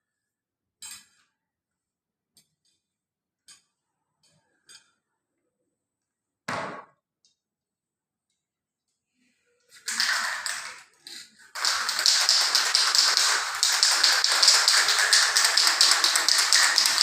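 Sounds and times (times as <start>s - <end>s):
spray can ball rattling: 9.8s - 17.0s.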